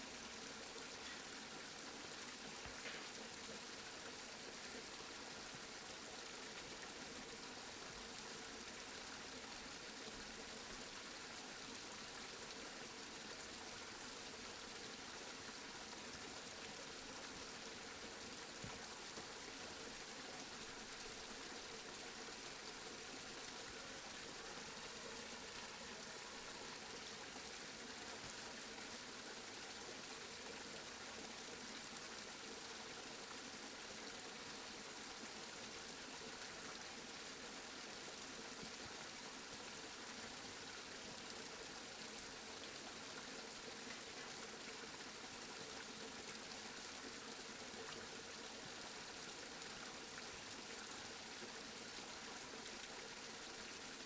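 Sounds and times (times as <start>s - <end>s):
steady rain hiss: 0.0s - 33.5s.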